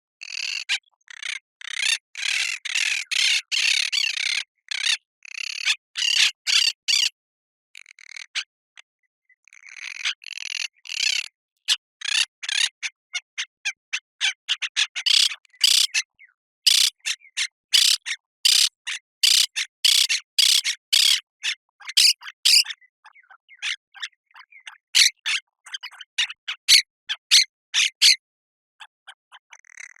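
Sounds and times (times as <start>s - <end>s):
parakeets squawking: 14.9s - 16.0s, 16.7s - 17.1s, 17.7s - 22.7s.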